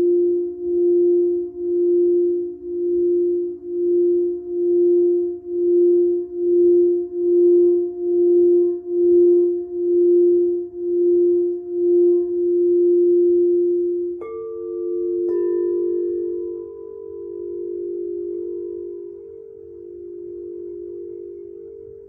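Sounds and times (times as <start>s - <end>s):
low wavering pure tone: 0.0s - 22.0s.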